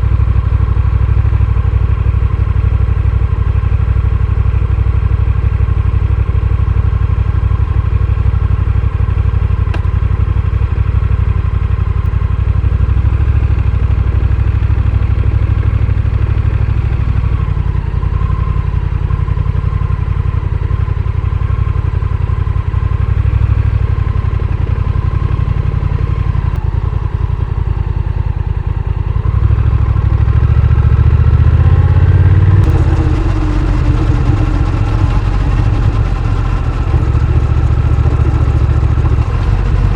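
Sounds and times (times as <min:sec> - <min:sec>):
motorcycle engine accelerating: 0:12.8 - 0:39.9.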